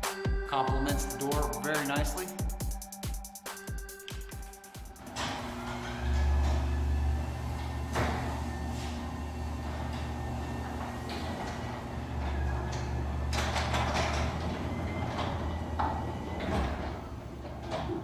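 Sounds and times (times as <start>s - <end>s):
garage door motor hum: 5.0s - 18.0s
garage door rollers rattling: 5.0s - 18.0s.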